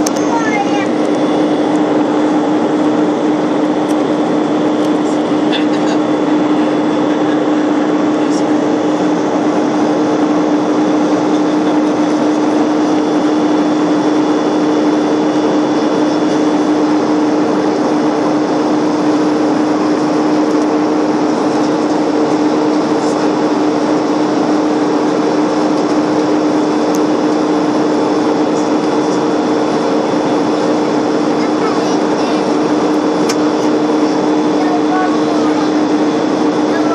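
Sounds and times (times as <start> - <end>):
airliner cabin engine drone: 0.0 - 36.9.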